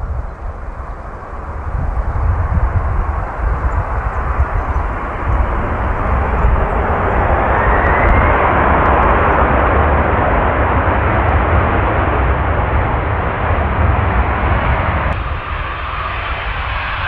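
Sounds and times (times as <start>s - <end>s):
faint rising whine: 0.0s - 10.9s
jet engines roaring: 0.0s - 17.0s.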